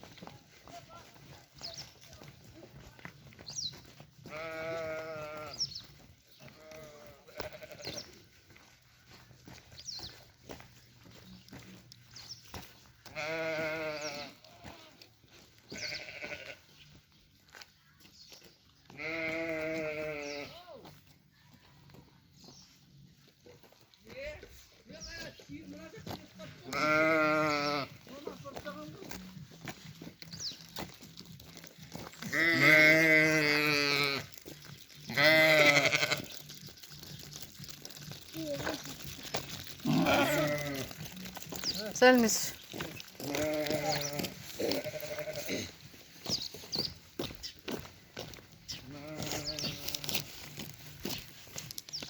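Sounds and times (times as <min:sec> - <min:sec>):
livestock bleating: 0:04.2 - 0:08.3, 0:13.0 - 0:16.9, 0:18.9 - 0:20.9, 0:26.4 - 0:29.4, 0:32.2 - 0:36.7, 0:37.3 - 0:46.4, 0:48.7 - 0:50.6.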